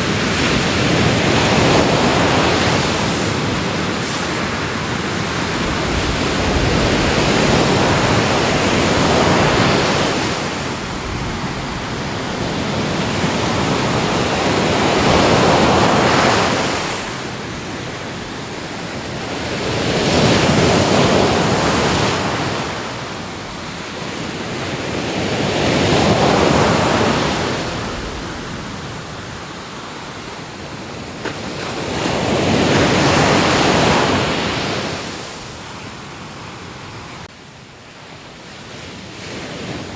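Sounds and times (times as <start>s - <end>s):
ocean waves breaking: 0.0s - 37.3s.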